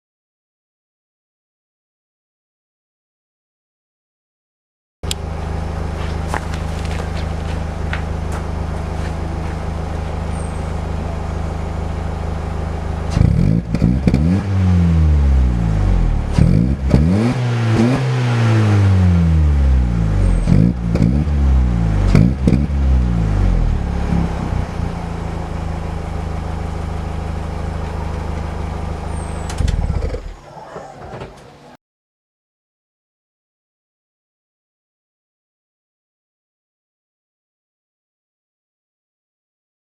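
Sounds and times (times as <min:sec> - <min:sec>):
car engine idling and revving: 0:05.1 - 0:30.4.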